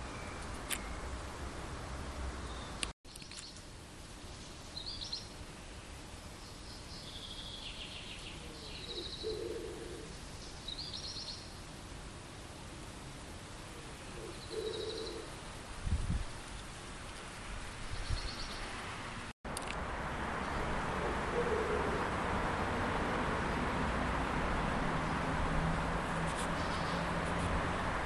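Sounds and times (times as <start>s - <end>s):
songbirds trilling: 4.3s - 11.6s, 13.6s - 15.4s, 25.0s - 27.1s.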